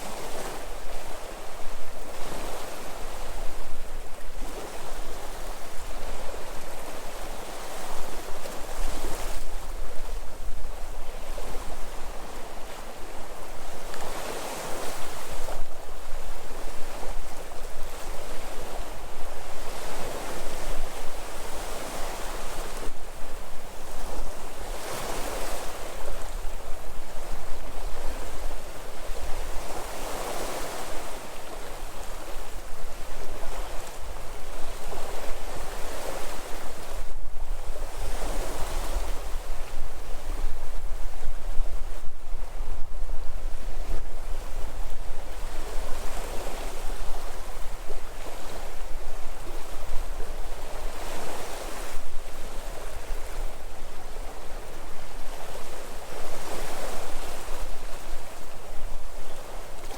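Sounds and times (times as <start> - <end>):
wind rumble on microphone: 0.0 - 59.9
sea waves breaking: 23.9 - 43.0, 43.8 - 59.9.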